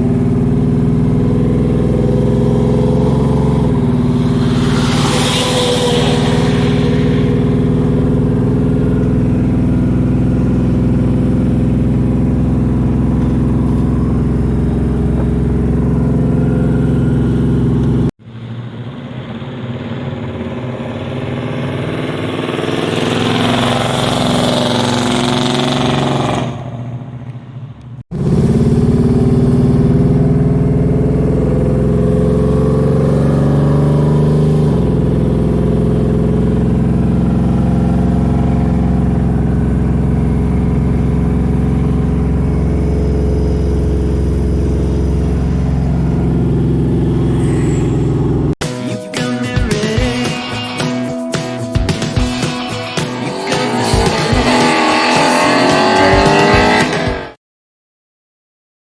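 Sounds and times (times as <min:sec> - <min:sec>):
engine note wavering in pitch: 0:00.0 - 0:26.2, 0:28.1 - 0:48.6
car engine idling: 0:00.0 - 0:48.6.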